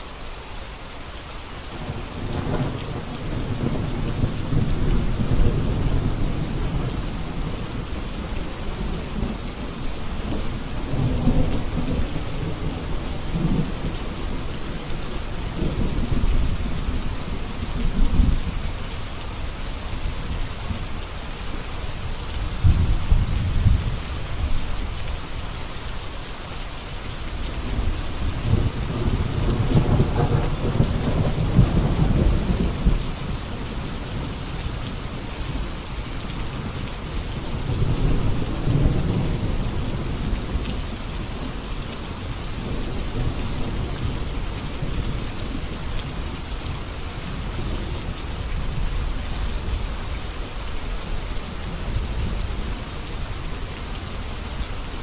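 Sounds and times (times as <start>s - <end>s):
steady rain falling: 0.0s - 55.0s
low rolling thunder: 1.8s - 18.8s, 22.4s - 24.7s, 27.4s - 50.0s.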